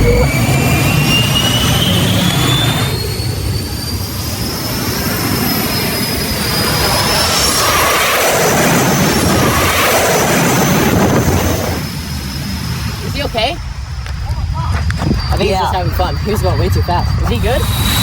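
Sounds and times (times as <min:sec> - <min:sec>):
rushing roar: 0:00.0 - 0:04.1, 0:04.8 - 0:13.0
jet turbine whine: 0:00.0 - 0:18.0.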